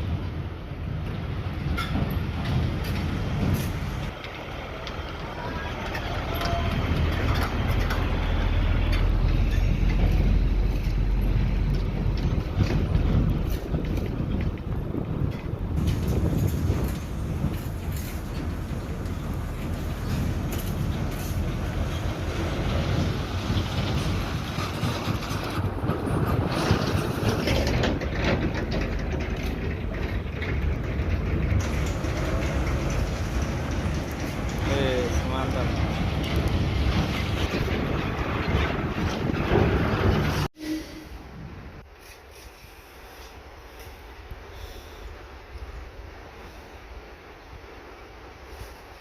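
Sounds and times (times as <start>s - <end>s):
diesel truck engine droning: 2.6s - 25.0s, 27.4s - 40.5s
clicks and rattles: 26.2s - 40.5s.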